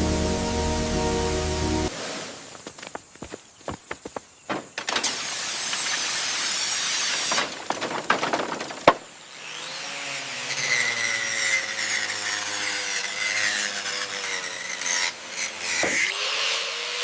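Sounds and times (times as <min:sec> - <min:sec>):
power tool scraping: 0:09.4 - 0:17.0.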